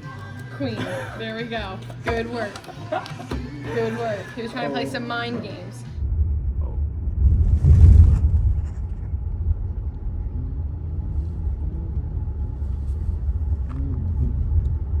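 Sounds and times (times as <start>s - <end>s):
steady low rumble: 3.6s - 15.0s.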